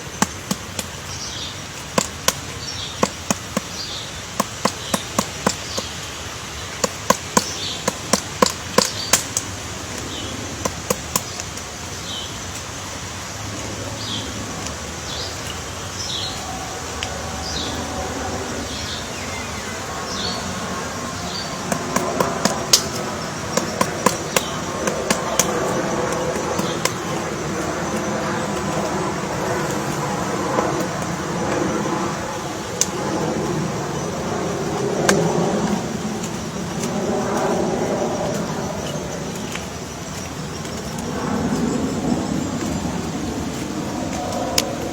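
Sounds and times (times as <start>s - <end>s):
woodpecker tapping on wood: 0.0s - 11.7s, 21.4s - 31.8s.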